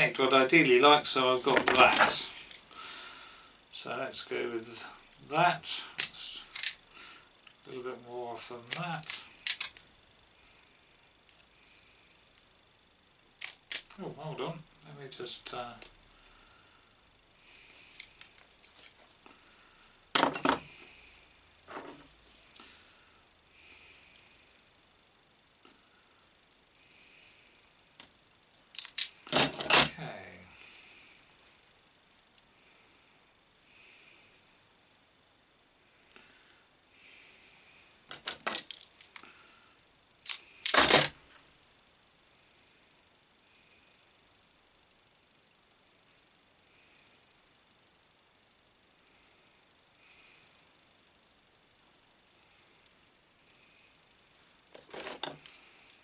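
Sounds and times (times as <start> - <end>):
tools clicking and rustling: 1.5 - 2.7, 6.0 - 6.8, 8.7 - 9.9, 13.4 - 14.0, 20.2 - 20.8, 28.7 - 30.0, 38.1 - 39.2, 40.3 - 41.2, 54.7 - 55.6
small clicks: 13.4 - 14.0, 28.7 - 29.5.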